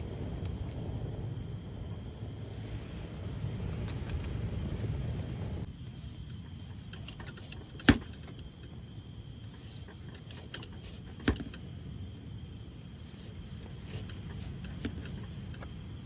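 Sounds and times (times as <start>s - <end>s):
low steady rumble: 0.0s - 16.0s
light clicks and clinks: 6.2s - 16.0s.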